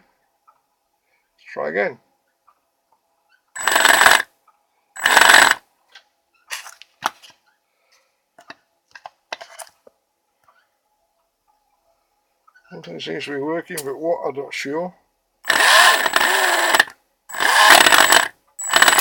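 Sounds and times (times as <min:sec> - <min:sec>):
electric motor high whine: 0:03.6 - 0:04.2, 0:05.0 - 0:05.6, 0:15.4 - 0:19.0
motor clicks and rattles: 0:03.6 - 0:04.3, 0:05.0 - 0:05.6, 0:15.4 - 0:19.0.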